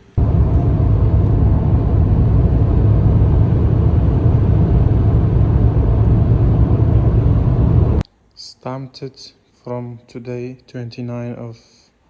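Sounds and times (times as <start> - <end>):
car engine rumbling: 0.0 - 8.0.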